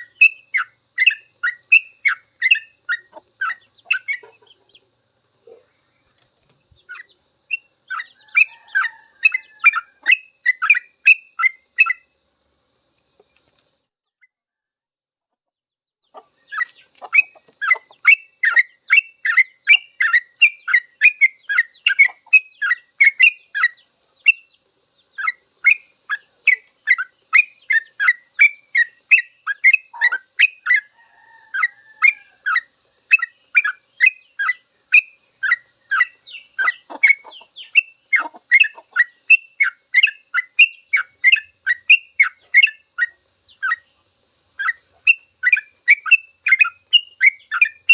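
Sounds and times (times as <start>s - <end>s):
bulbul singing rapid chirps: 0.0s - 5.0s, 16.2s - 30.9s, 31.6s - 47.9s.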